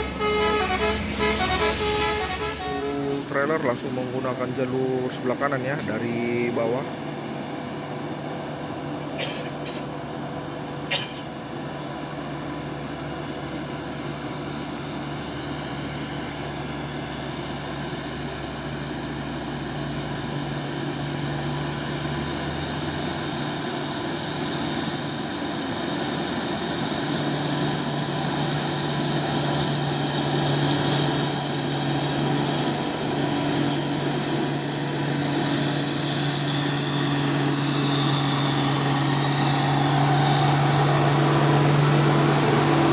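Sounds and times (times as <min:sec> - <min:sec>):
diesel truck engine droning: 0:00.0 - 0:42.9.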